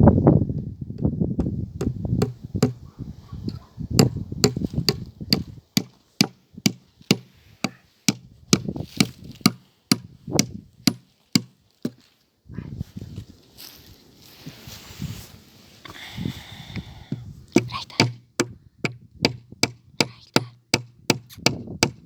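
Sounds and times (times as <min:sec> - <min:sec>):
hand tool striking hard: 0:01.4 - 0:02.8, 0:04.0 - 0:12.0, 0:17.6 - 0:18.6, 0:19.2 - 0:22.0.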